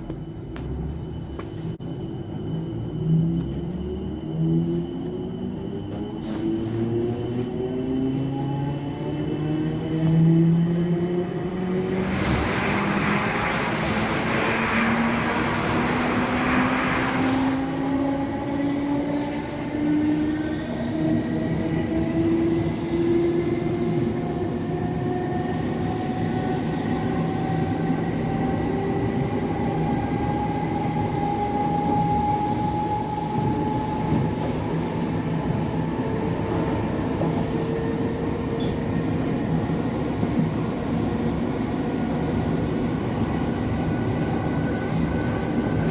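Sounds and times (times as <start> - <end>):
electric train motors whining: 7.5 - 23.4.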